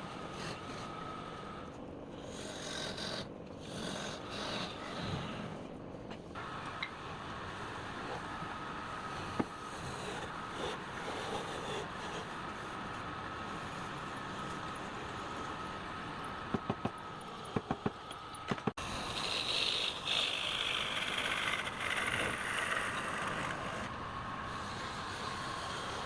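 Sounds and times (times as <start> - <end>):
turning tool cutting wood: 18.8 - 23.9.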